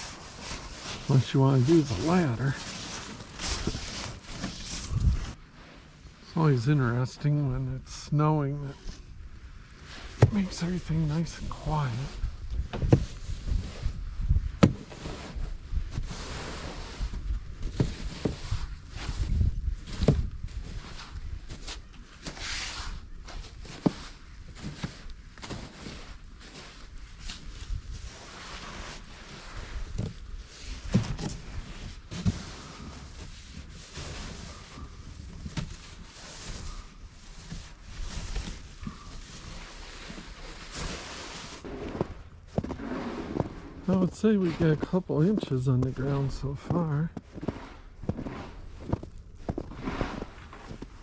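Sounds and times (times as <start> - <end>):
wind rumbling on microphone: 0.0 - 5.4, 9.0 - 22.2, 26.9 - 40.7
wind gusting across microphone: 3.3 - 5.4, 10.2 - 14.6, 15.3 - 21.6.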